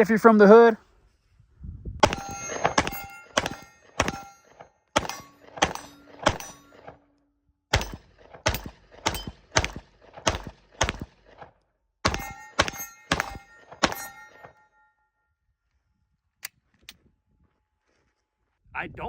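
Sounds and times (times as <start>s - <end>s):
pistol shots: 2.0s - 4.4s, 5.0s - 7.0s, 7.7s - 11.4s, 12.0s - 14.5s.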